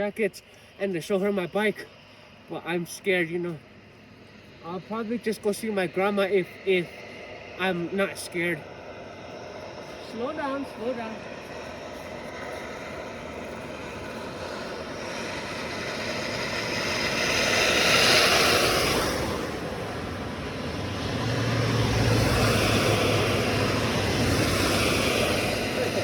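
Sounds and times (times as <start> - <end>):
steady low hum: 0.0 - 26.0
wind: 0.0 - 26.0
motorcycle riding on wet road: 14.4 - 26.0.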